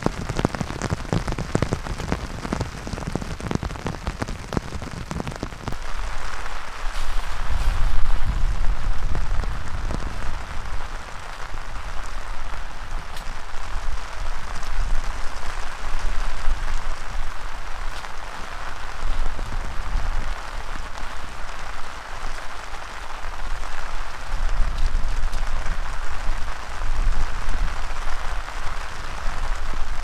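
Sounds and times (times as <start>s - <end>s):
strong gusting wind: 0.0s - 21.4s
heavy rain falling: 0.0s - 30.0s.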